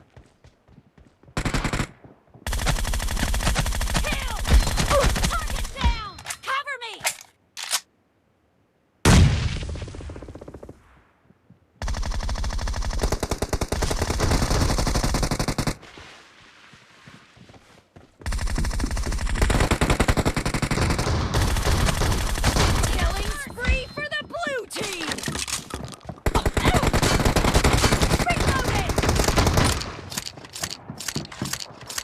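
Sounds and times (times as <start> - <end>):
rapid automatic gunfire: 1.4 - 1.9, 2.5 - 5.8, 11.8 - 15.8, 18.3 - 23.4, 26.2 - 32.0
loud gunshot blast: 9.0 - 10.0.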